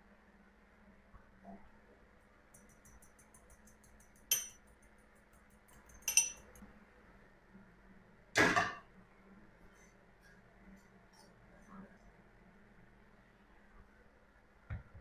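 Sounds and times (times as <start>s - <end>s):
kitchenware clinking: 2.5s - 4.7s, 5.8s - 6.6s
kitchenware clattering: 4.2s - 4.6s, 6.0s - 6.6s.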